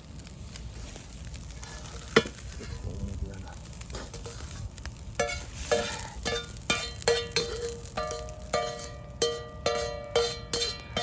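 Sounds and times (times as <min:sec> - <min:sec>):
metal spatula clanging on pan: 0:05.2 - 0:11.0.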